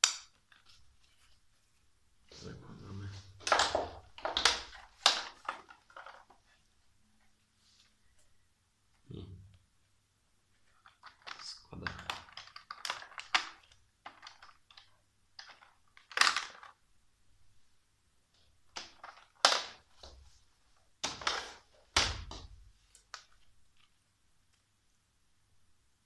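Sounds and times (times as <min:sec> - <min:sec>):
plastic parts clicking: 0:03.4 - 0:06.4, 0:10.8 - 0:16.8, 0:18.7 - 0:20.0, 0:21.0 - 0:24.0.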